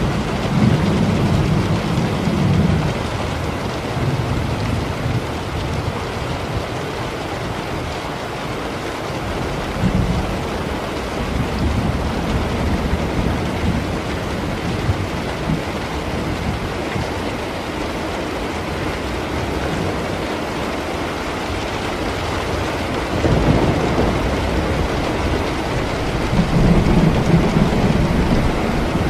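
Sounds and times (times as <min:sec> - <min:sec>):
steady rain: 0:00.0 - 0:29.0
rolling thunder: 0:22.0 - 0:29.0.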